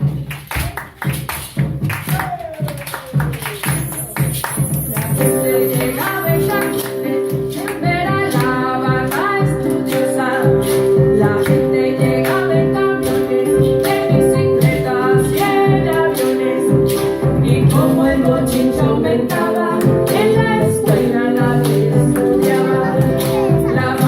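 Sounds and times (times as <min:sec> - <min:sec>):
percussive beat: 0:00.0 - 0:24.0
guitar: 0:03.6 - 0:24.0
woman singing: 0:04.9 - 0:24.0.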